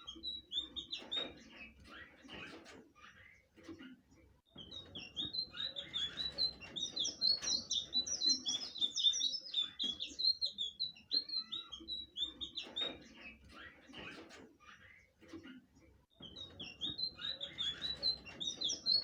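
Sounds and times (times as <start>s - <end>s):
bird singing high chirps: 0.0s - 1.8s, 4.5s - 13.8s, 16.1s - 19.0s.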